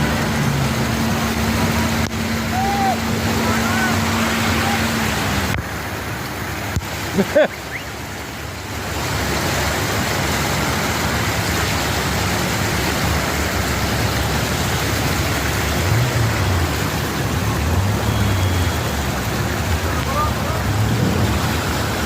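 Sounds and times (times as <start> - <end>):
rushing floodwater: 0.0 - 22.0.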